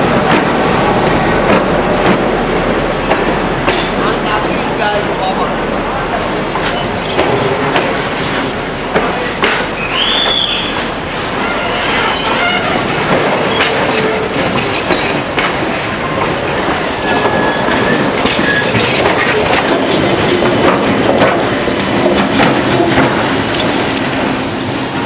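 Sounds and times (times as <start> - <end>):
diesel locomotive engine hum: 0.0 - 25.0
train wheels clicking over joints: 6.3 - 25.0
wheel squeal: 16.6 - 19.4.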